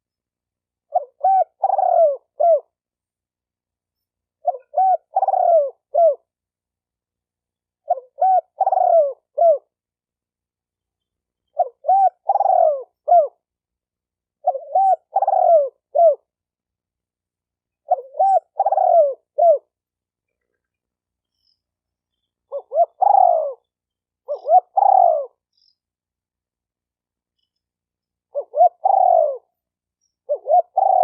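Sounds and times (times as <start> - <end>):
dove cooing: 0.8 - 2.8, 4.4 - 6.3, 7.8 - 9.8, 11.5 - 13.4, 14.4 - 16.3, 17.8 - 19.8, 22.5 - 25.7, 28.3 - 29.5, 30.2 - 31.0.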